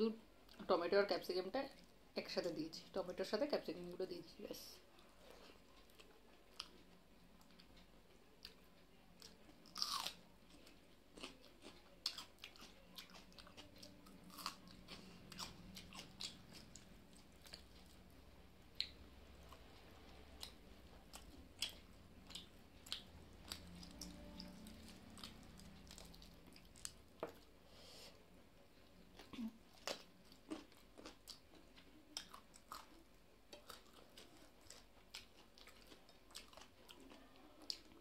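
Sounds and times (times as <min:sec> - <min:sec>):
person chewing: 0:05.0 - 0:27.6, 0:29.1 - 0:38.0.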